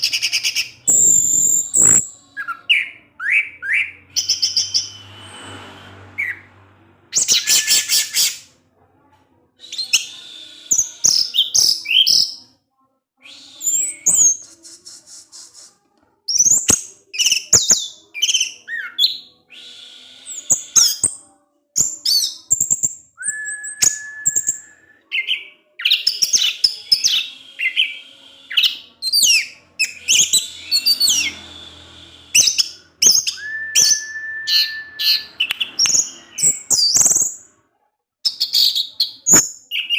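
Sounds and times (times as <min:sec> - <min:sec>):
long level bird whistles: 0:07.1 - 0:08.4, 0:13.2 - 0:14.5, 0:22.1 - 0:37.3
thrush singing: 0:21.8 - 0:37.5.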